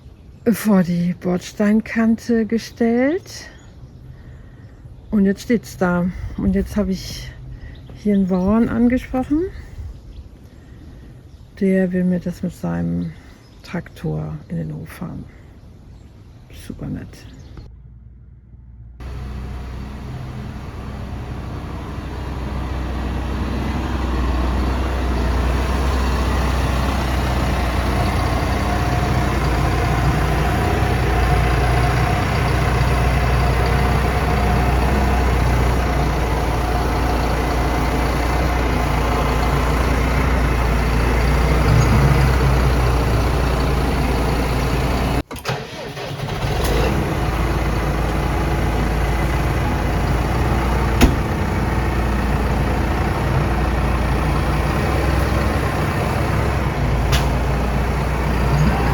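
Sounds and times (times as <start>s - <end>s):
tractor engine running: 17.6s - 58.9s.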